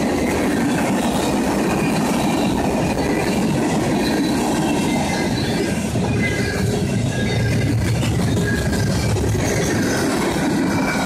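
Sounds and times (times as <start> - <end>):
train wheels rumbling on rails: 0.0 - 11.0
high wheel squeals: 1.9 - 10.1.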